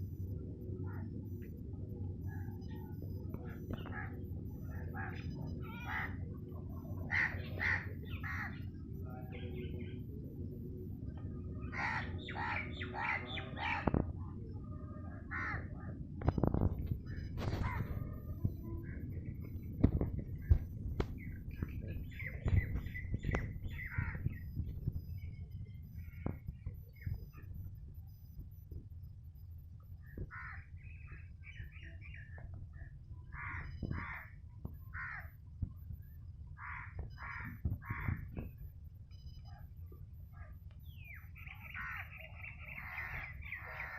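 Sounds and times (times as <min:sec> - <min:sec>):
crows cawing: 0:07.1 - 0:08.6, 0:11.7 - 0:13.8, 0:15.3 - 0:15.7, 0:30.3 - 0:30.7, 0:33.3 - 0:35.3, 0:36.6 - 0:38.2.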